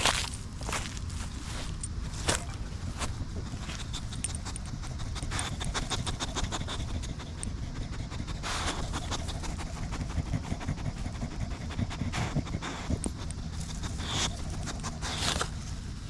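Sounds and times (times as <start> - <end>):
dog panting rapidly: 3.3 - 15.6.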